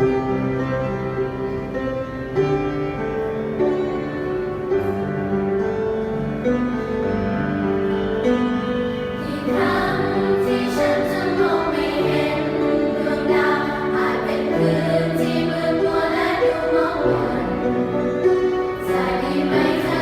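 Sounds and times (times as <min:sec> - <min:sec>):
piano accompaniment: 0:00.0 - 0:20.0
choir singing: 0:09.2 - 0:20.0.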